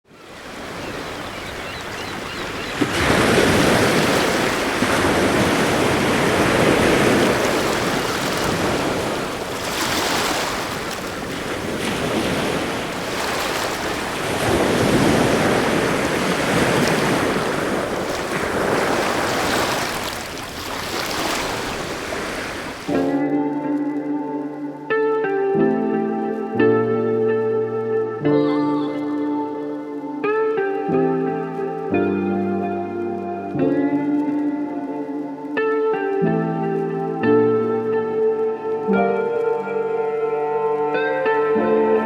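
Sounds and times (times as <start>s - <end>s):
sea surf breaking: 0.2s - 23.2s
wind buffeting microphone: 0.3s - 23.1s.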